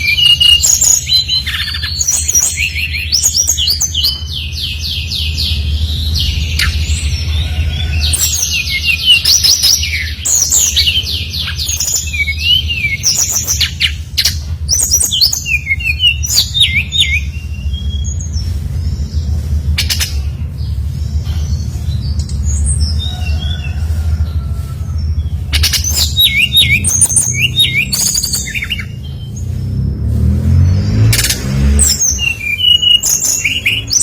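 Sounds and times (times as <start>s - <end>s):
bird singing whistled notes: 0.0s - 7.2s, 7.8s - 18.5s, 25.5s - 29.4s, 31.8s - 34.0s.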